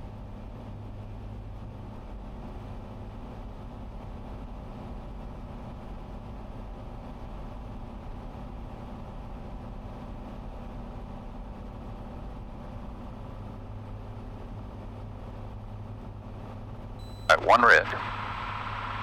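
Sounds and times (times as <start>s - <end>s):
propeller plane engine drone: 0.0s - 19.0s.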